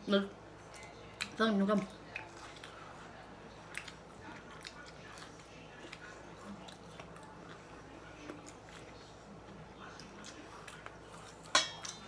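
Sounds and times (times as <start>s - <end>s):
faint chewing: 0.5s - 12.0s.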